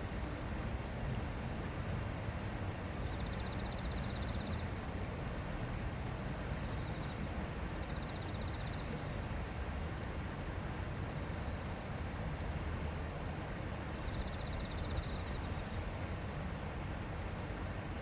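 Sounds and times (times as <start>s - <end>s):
river murmuring over stones: 8.8s - 14.1s.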